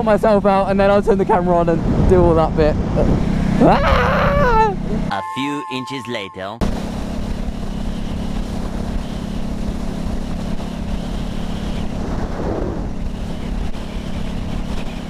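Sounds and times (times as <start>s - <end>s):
wind rushing over microphone: 0.0s - 5.0s, 8.2s - 15.0s
motorcycle engine running: 6.6s - 15.0s.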